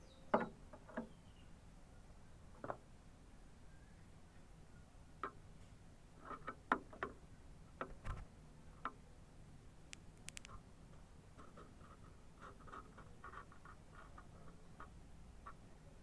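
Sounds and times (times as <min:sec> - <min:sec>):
soft low thump: 0:07.9 - 0:08.3.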